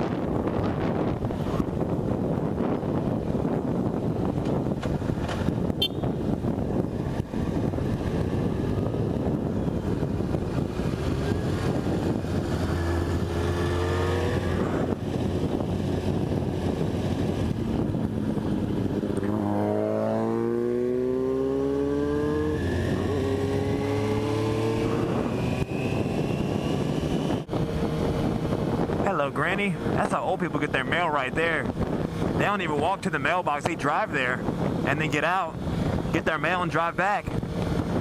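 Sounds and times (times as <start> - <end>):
motorcycle engine revving: 0.0 - 30.0
wind rush on microphone: 0.0 - 38.0.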